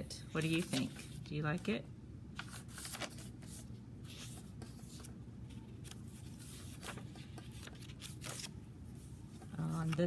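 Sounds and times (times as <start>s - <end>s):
low steady hum: 0.0s - 10.0s
paper pages rustling: 0.3s - 1.7s, 2.4s - 10.0s.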